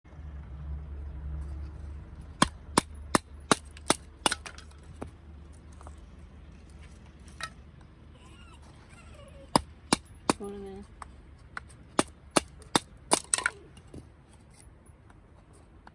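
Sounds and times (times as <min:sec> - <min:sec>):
sharp wooden knocks: 0:02.4 - 0:05.1.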